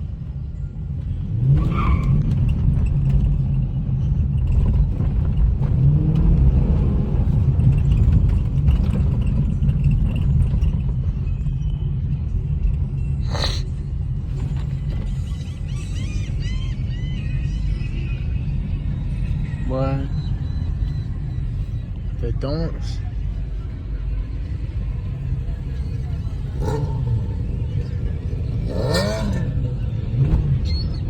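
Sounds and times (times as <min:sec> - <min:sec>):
car engine rumbling: 0:00.0 - 0:31.0.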